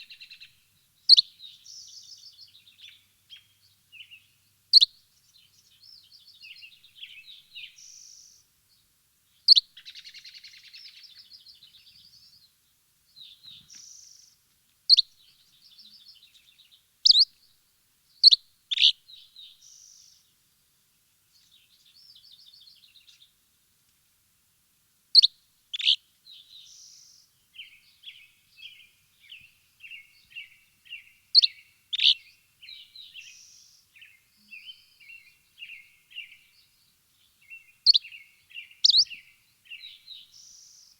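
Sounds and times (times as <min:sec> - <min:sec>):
sharp high bird chirps: 0:37.9 - 0:38.2, 0:38.8 - 0:39.1.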